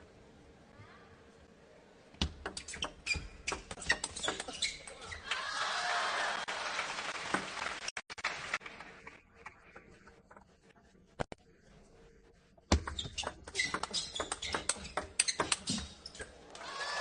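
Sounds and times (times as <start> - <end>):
shoe squeaks on floor: 2.6 - 5.2, 12.8 - 16.3.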